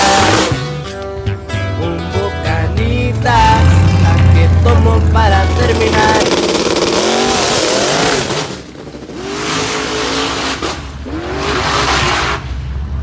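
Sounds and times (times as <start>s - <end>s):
truck engines revving: 0.0s - 13.0s
tire squeal: 5.6s - 12.8s.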